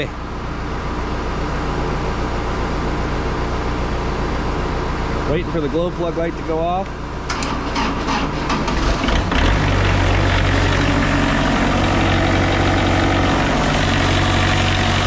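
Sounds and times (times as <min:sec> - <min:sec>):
diesel engine cranking and idling: 0:00.0 - 0:15.0.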